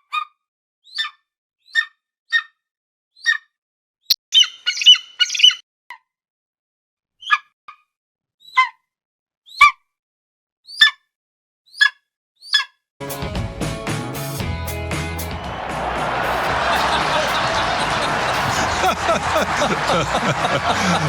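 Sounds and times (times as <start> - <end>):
eagle chirping calls: 4.4 - 5.6.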